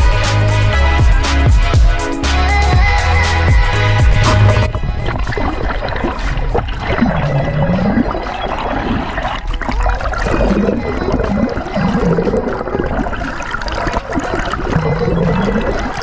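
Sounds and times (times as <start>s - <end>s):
water gurgling and sloshing: 3.6s - 16.0s.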